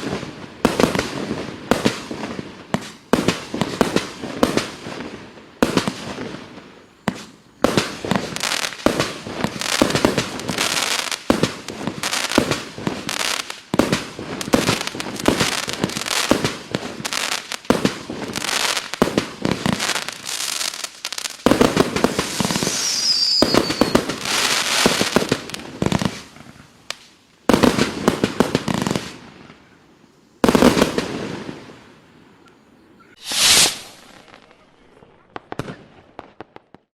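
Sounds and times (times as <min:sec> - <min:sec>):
firework bangs and crackle: 0:00.0 - 0:29.8, 0:30.4 - 0:32.1, 0:33.1 - 0:36.9
firework cake firing volleys: 0:07.1 - 0:26.6, 0:33.2 - 0:36.8
brief hiss: 0:22.1 - 0:25.2, 0:33.2 - 0:34.6
falling whistle: 0:22.4 - 0:24.0.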